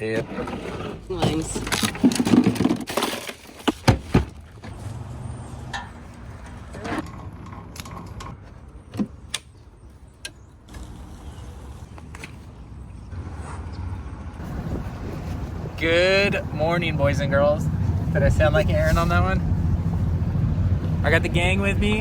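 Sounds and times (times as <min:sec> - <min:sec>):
low steady rumble: 0:14.3 - 0:22.0.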